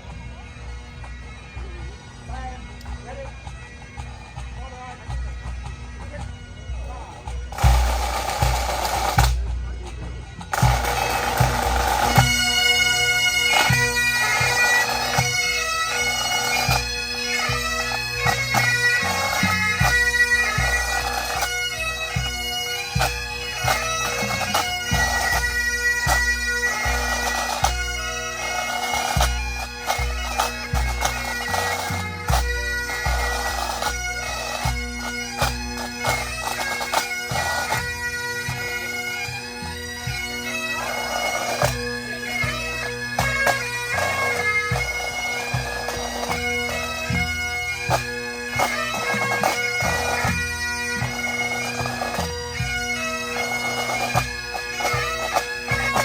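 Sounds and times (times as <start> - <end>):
bagpipes playing: 0.0 - 56.0
drums beating: 2.9 - 12.6.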